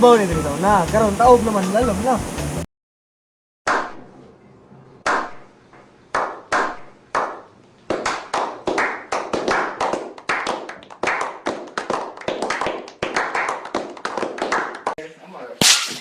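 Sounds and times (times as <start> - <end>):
hand claps with echo: 6.1 - 15.0.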